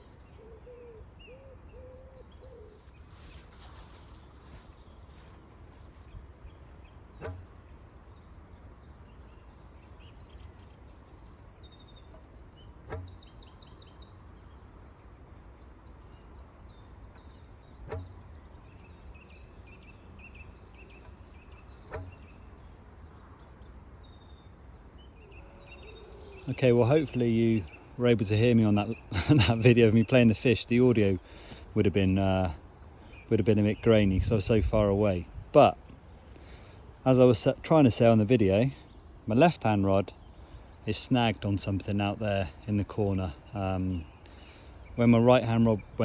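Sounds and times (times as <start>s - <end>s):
small birds chirping and trilling: 0.0s - 46.0s.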